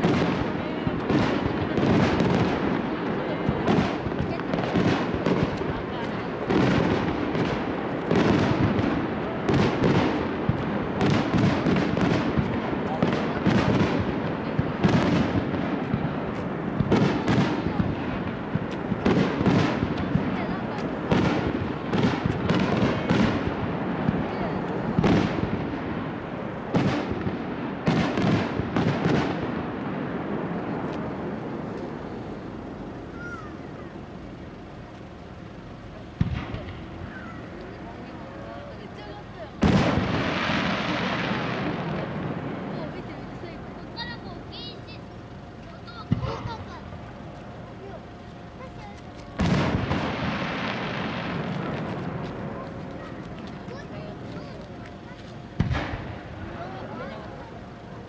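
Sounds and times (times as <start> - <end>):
continuous rumbling noise: 0.0 - 58.0
rolling echoes: 0.0 - 58.0
firework shells bursting: 45.0 - 57.9.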